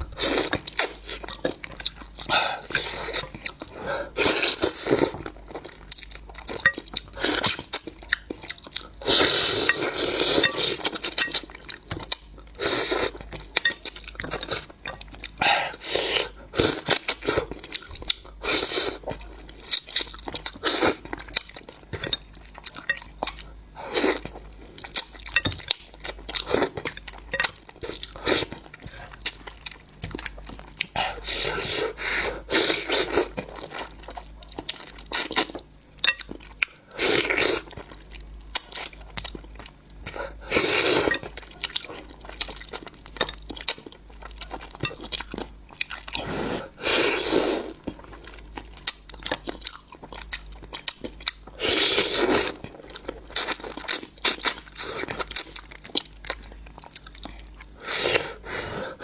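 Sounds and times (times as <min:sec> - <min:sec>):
crunching and chewing: 0:00.0 - 0:58.9.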